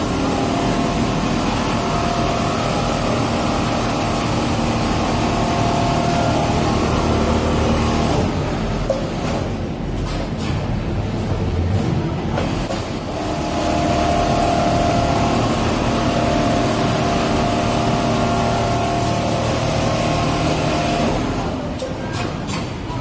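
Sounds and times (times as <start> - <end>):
sewing machine running: 0.0 - 8.8, 12.5 - 21.8.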